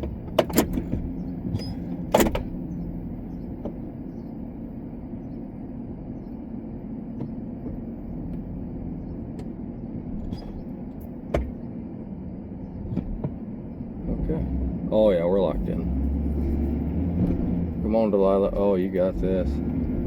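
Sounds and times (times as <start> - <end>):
truck engine running: 0.0 - 20.0
sharp clunk: 0.3 - 2.5.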